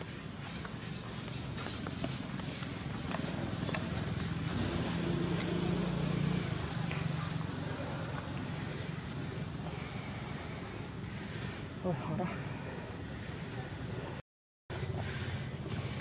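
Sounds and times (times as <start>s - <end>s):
motor engine passing by: 1.6s - 11.6s.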